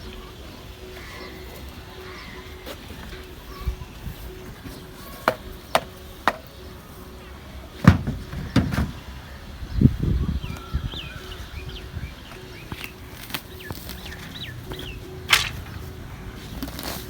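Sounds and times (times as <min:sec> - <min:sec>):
dull thuds: 0:07.8 - 0:09.0.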